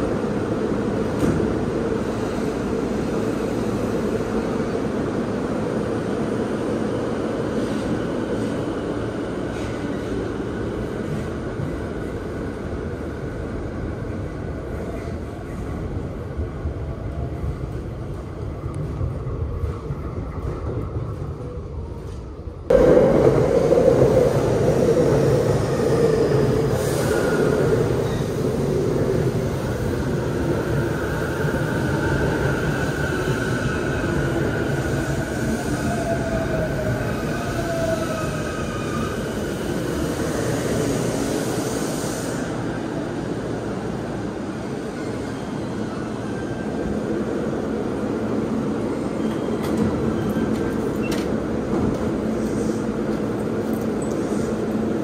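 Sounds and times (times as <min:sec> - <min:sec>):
electric train rumbling: 0:00.0 - 0:55.0
wheels and brakes squealing: 0:49.2 - 0:51.3.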